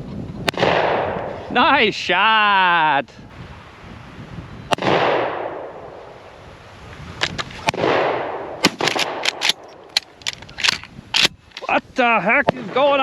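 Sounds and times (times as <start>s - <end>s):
shotgun shots with rolling echo: 0.5s - 1.3s, 4.7s - 5.8s, 7.6s - 9.6s.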